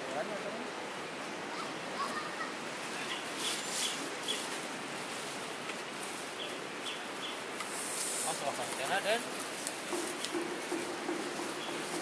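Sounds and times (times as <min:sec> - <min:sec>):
outdoor hiss: 0:00.0 - 0:12.0.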